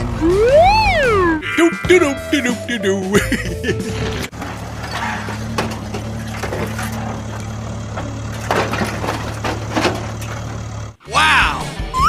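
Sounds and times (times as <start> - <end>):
rattling crunching clatter: 3.7 - 11.0.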